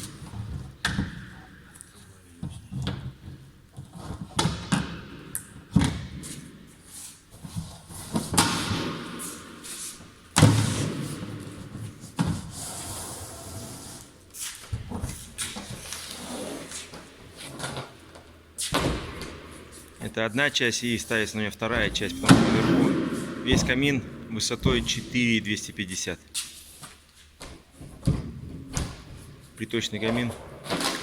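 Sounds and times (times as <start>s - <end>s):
pipe scraping on rails: 21.7s - 24.1s.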